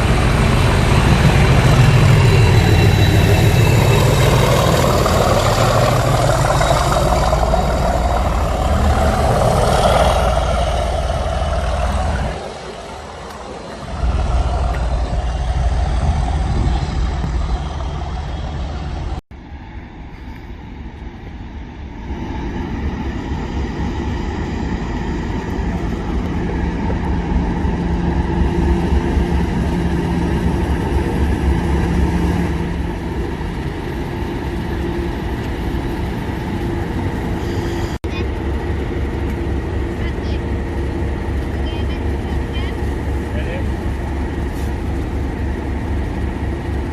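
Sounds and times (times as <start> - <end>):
diesel locomotive engine running: 0.0 - 46.9.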